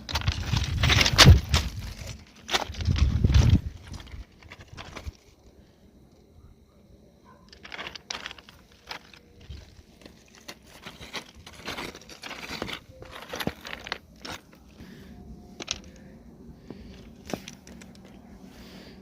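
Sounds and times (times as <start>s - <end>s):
irregular crunches and clicks: 0.0s - 5.4s, 7.4s - 14.9s, 16.8s - 18.2s.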